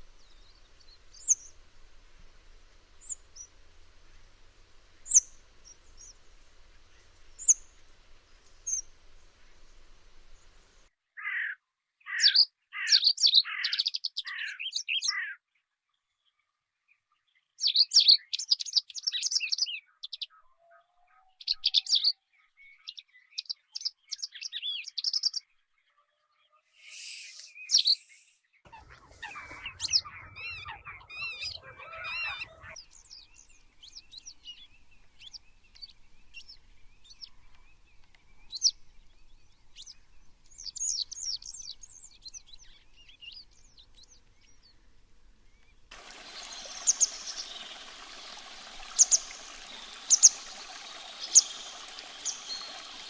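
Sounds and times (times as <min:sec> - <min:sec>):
songbirds chirping: 0:00.0 - 0:53.0.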